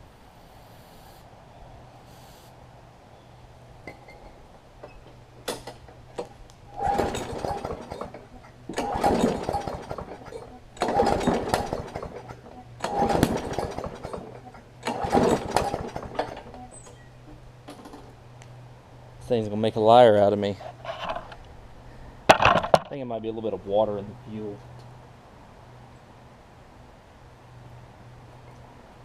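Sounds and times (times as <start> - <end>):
mower engine pull-starting: 3.8 - 18.2, 20.6 - 21.4.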